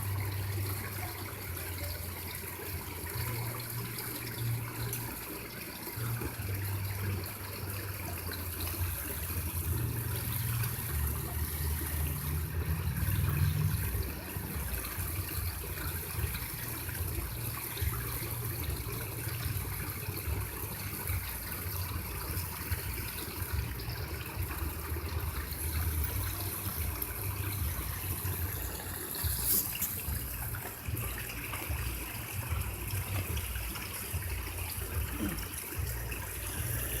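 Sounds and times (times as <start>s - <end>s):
running water: 0.0s - 37.0s.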